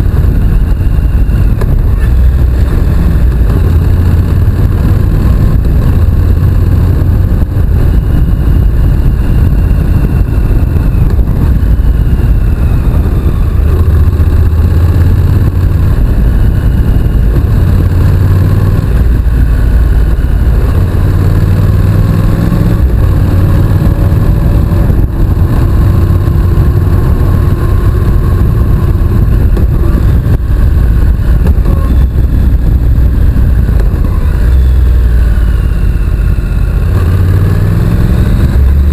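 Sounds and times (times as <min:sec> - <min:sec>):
motorcycle engine running: 0:00.0 - 0:38.9
wind rumble on microphone: 0:00.0 - 0:38.9.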